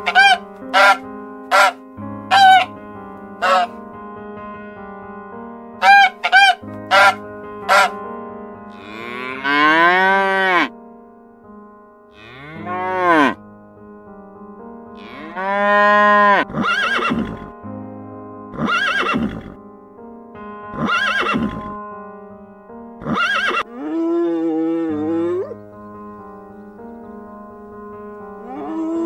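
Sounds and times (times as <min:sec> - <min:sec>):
animal calling: 0:00.0 - 0:02.7, 0:03.4 - 0:03.8, 0:05.8 - 0:08.0, 0:18.6 - 0:19.5, 0:20.8 - 0:21.7, 0:23.0 - 0:25.8, 0:28.4 - 0:29.0
background music: 0:00.0 - 0:29.0.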